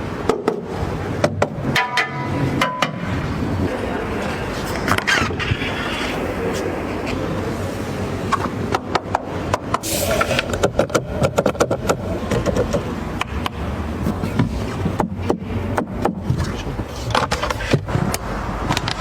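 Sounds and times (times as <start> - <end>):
road noise: 0.0 - 19.0
sharp clicks and knocks: 8.3 - 19.0.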